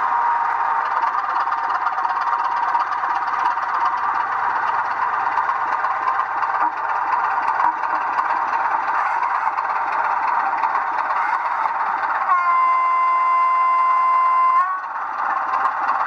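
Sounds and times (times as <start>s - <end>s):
rattly model engine sound: 0.0s - 16.0s
sustained horn note: 12.3s - 14.8s.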